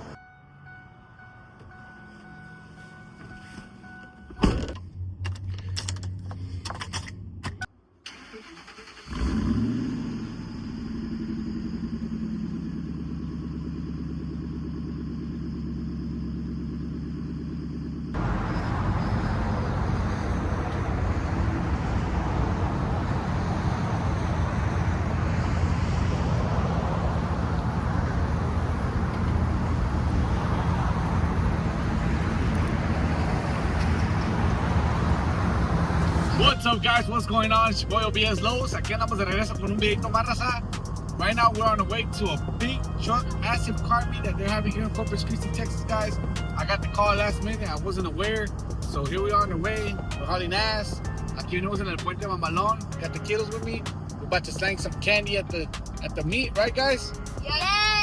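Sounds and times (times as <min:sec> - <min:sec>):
engine starter clicks: 0:08.0 - 0:09.6
vehicle engine idling: 0:08.2 - 0:58.0
loud rough engine noise: 0:09.2 - 0:56.5.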